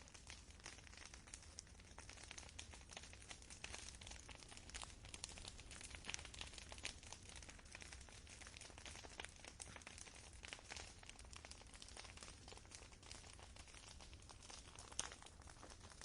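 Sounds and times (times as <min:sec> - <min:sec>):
faint campfire crackling: 0:00.0 - 0:16.0.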